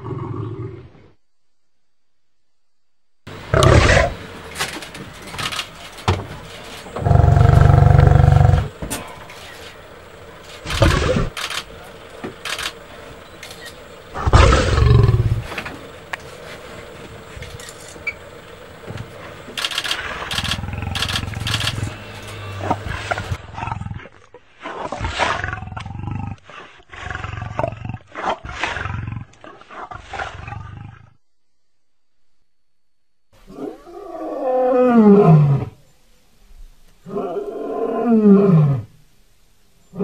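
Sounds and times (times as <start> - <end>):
lion roaring: 3.4 - 4.3, 6.4 - 11.4, 14.0 - 15.9, 19.1 - 31.2.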